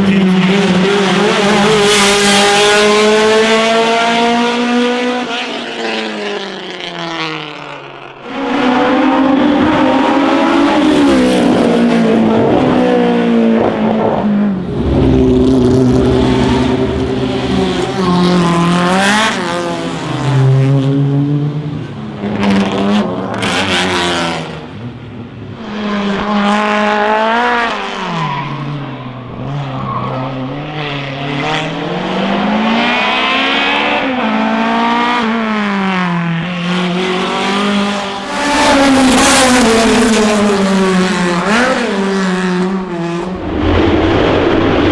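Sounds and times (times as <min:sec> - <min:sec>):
racing car engines revving: 0:00.0 - 0:44.9.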